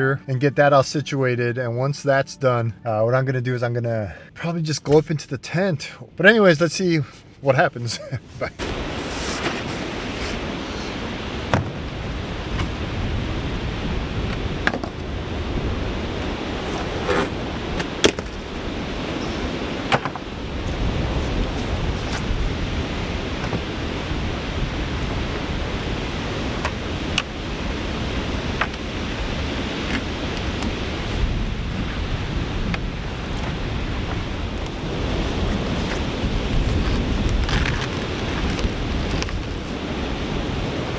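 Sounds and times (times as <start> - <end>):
wind buffeting microphone: 8.5 - 40.9.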